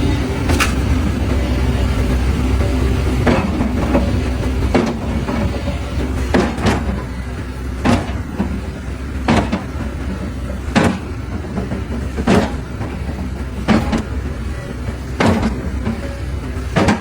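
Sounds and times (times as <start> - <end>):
sharp knocks: 16.8 - 17.0.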